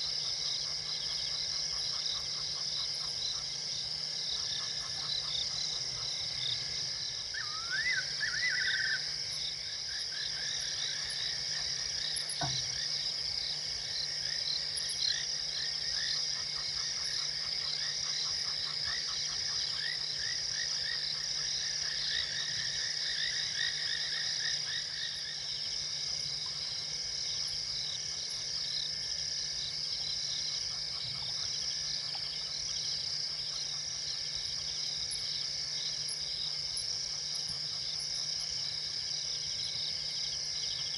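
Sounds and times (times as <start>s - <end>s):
frogs chirping: 0.0s - 40.9s
insect trill: 0.0s - 40.9s.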